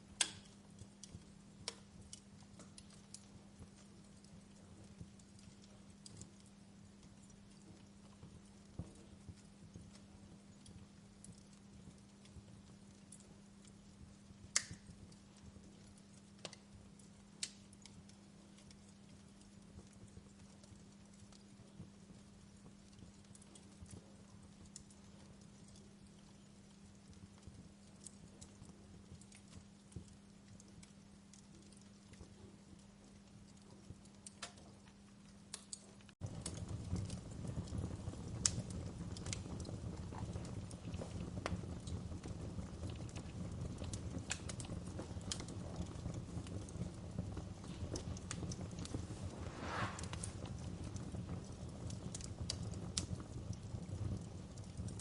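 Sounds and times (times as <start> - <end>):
wood fire crackling: 0.0 - 55.0
sharp pops of fire: 0.1 - 3.9, 14.5 - 15.0, 35.5 - 55.0
low rush of flames: 35.7 - 55.0.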